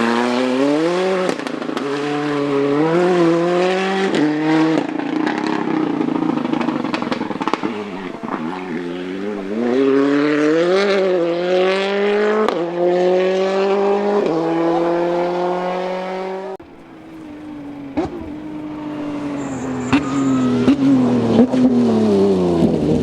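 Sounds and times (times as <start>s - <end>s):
quieter car engine: 0.0s - 23.0s
rally car engine revving hard: 0.0s - 23.0s
sharp crack: 4.1s - 9.8s.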